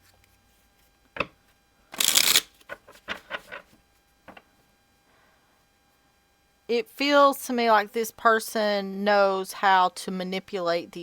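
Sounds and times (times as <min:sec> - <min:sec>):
cards riffling: 0:02.0 - 0:03.6.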